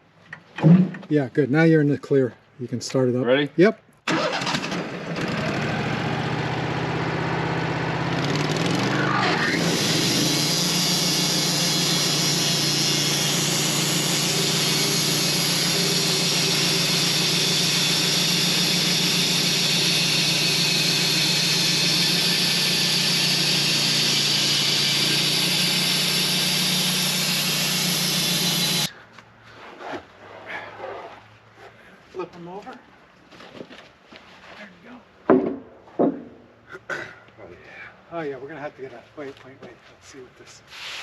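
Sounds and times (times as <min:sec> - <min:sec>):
sawmill engine drone: 0:04.1 - 0:28.9
saw blade cutting log: 0:08.1 - 0:28.9.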